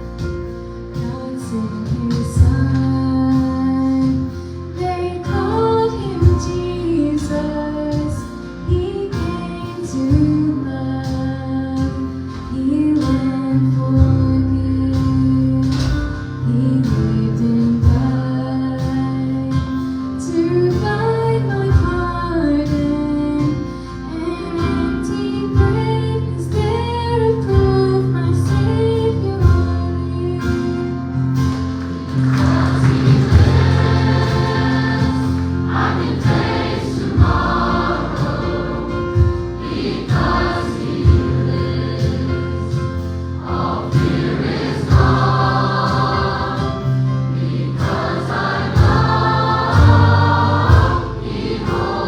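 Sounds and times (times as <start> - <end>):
bass notes: 0.0 - 52.0
gospel choir singing: 31.5 - 52.0
drum hits: 32.2 - 47.0, 47.8 - 52.0.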